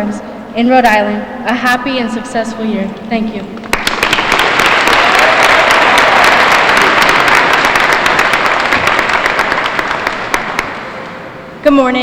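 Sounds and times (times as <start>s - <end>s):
audience applauding: 3.7s - 11.2s.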